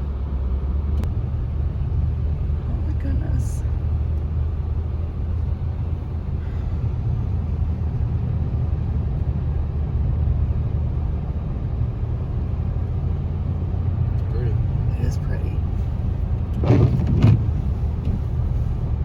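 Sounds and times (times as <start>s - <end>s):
car engine rumble: 0.0s - 19.0s
tyres on snowy road: 0.0s - 19.0s.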